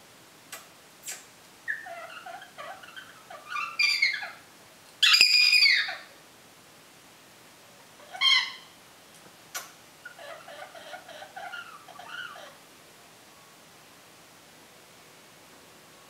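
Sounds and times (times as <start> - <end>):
parrot chattering: 1.1 - 4.4, 5.0 - 6.1, 8.0 - 8.7, 9.5 - 12.6
parrot loud high call: 1.7 - 4.4, 5.0 - 6.1, 8.0 - 8.8, 10.1 - 12.6.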